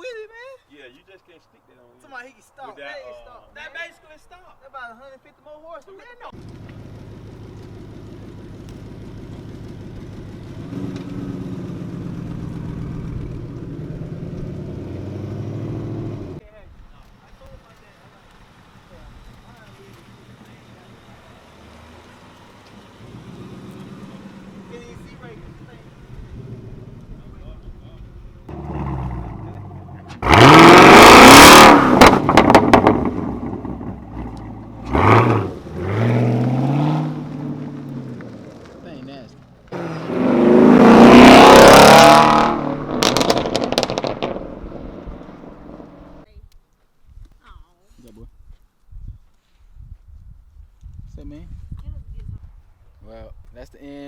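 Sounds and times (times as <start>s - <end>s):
car engine idling unevenly: 6.4s - 14.7s, 17.0s - 36.0s
exhaust cracks: 6.4s - 16.4s, 17.0s - 46.2s.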